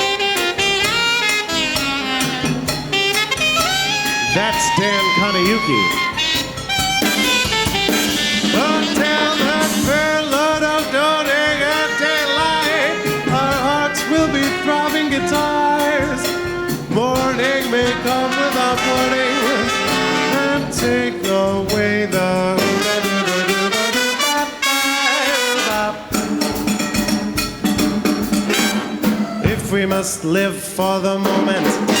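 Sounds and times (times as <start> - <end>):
brass section playing swing: 0.0 - 27.0, 27.7 - 32.0
rhythm section: 0.0 - 32.0.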